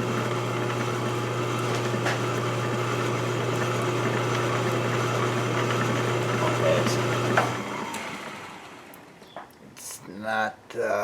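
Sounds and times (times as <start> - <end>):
lathe motor humming: 0.0 - 9.0.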